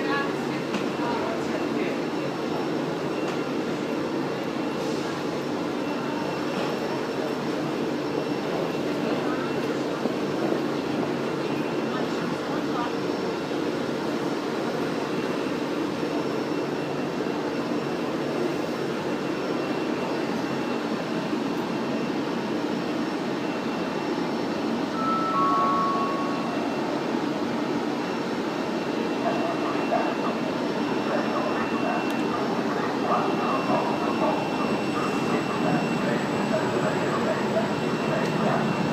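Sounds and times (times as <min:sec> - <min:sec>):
electric train hum: 0:00.0 - 0:38.9
faint high whine: 0:23.3 - 0:38.9
two-note beep: 0:25.0 - 0:26.9.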